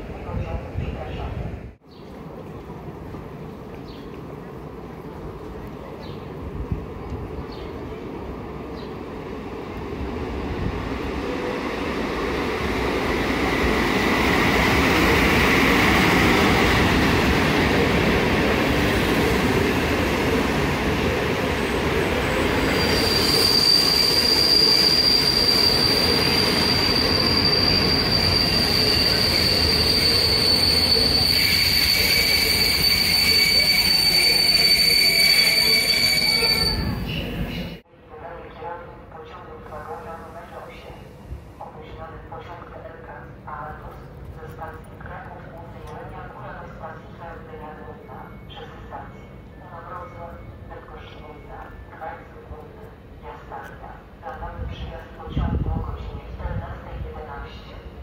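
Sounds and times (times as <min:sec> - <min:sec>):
lower squeal: 0:22.3 - 0:37.8
high-pitched wheel squeal: 0:22.7 - 0:37.3.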